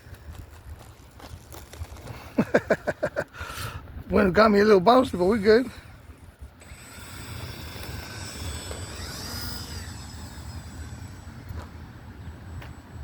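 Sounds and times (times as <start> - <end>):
rc plane motor and propeller whine: 5.0 - 13.0.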